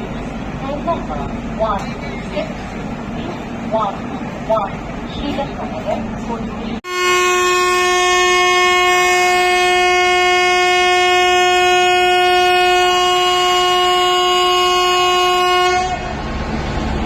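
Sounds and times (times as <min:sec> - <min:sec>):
locomotive horn long blast: 0:06.8 - 0:16.4.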